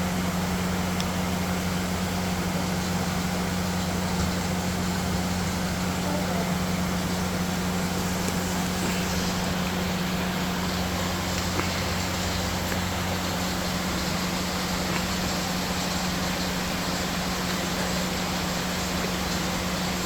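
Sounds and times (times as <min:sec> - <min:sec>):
low machine hum: 0:00.0 - 0:20.0
even hiss: 0:04.0 - 0:20.0.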